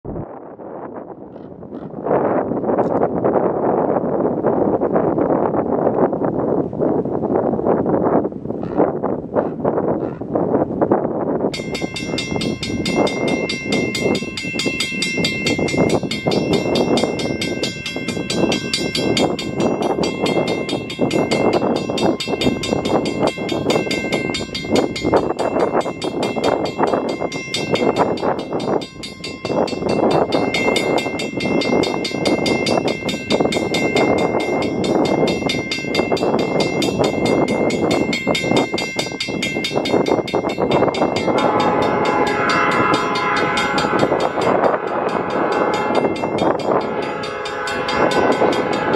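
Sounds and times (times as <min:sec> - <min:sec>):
crossing warning bell ringing: 0:11.4 - 0:48.9
train rushing noise: 0:11.4 - 0:48.9.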